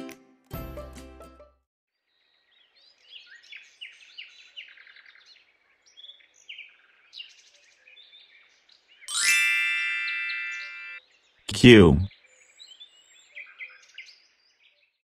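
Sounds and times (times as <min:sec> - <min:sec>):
bright ringing musical tone: 0:09.1 - 0:11.0.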